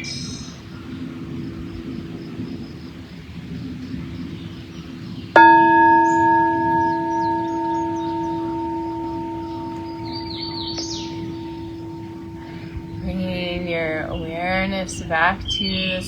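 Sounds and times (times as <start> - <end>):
faint birds chirping: 0.0 - 16.0
singing bowl ringing: 5.4 - 15.4.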